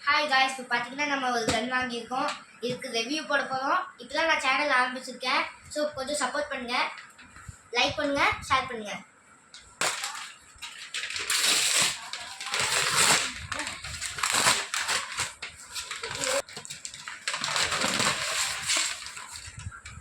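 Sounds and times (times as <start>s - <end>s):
packaging crinkling and rustling: 9.8s - 20.0s.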